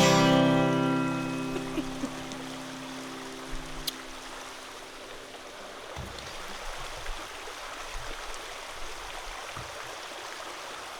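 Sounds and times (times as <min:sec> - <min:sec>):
acoustic guitar note: 0:00.0 - 0:04.0.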